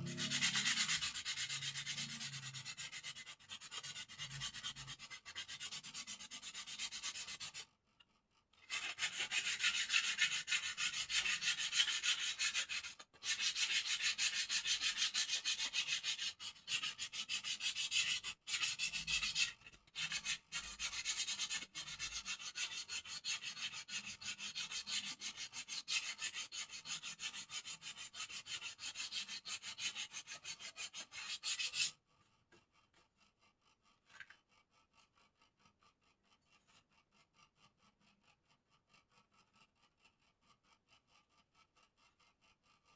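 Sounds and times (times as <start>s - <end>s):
sandpaper scraping: 0.0s - 3.0s, 8.7s - 19.5s, 20.1s - 31.9s.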